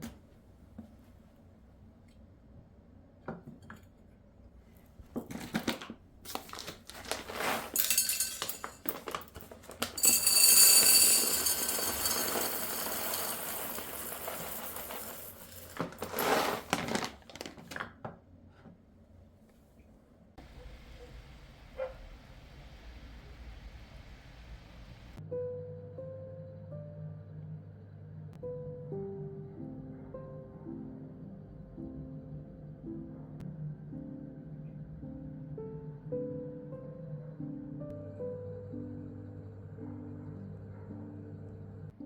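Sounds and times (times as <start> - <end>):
dishes and utensils clinking: 7.4 - 16.1
steady hiss: 20.4 - 25.2.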